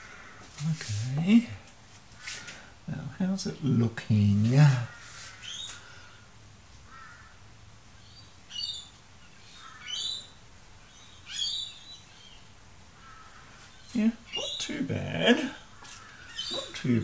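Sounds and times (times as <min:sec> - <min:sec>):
faint bird chirps: 0:08.0 - 0:14.8, 0:15.5 - 0:17.0.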